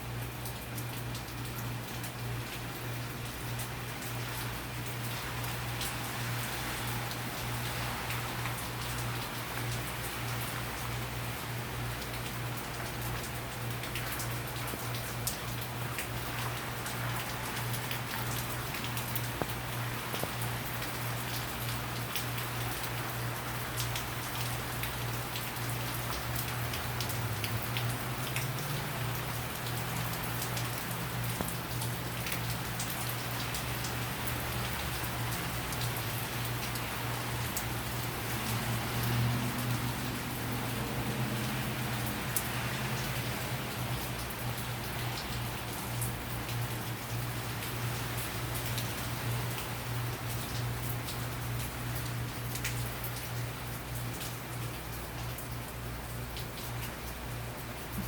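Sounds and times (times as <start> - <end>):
heavy rain spattering: 0.1 - 58.0.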